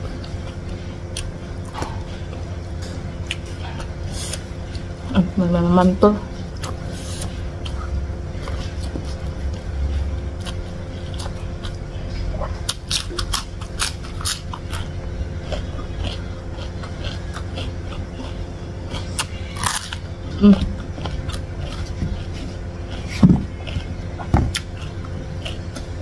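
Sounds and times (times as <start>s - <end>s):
person chewing: 0.0s - 5.1s, 6.4s - 26.0s
low hum: 0.0s - 26.0s
bite into raw eggplant: 6.5s - 26.0s.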